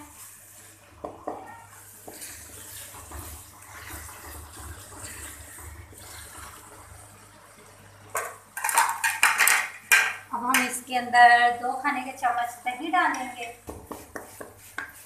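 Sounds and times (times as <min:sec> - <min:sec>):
wooden spatula stirring: 0:00.0 - 0:06.6, 0:13.2 - 0:15.0
masala sizzling in a pan: 0:00.0 - 0:15.0.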